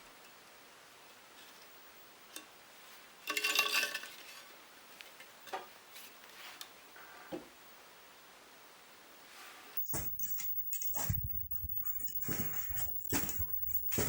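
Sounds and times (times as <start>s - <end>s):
small metal parts clinking: 9.8s - 14.0s.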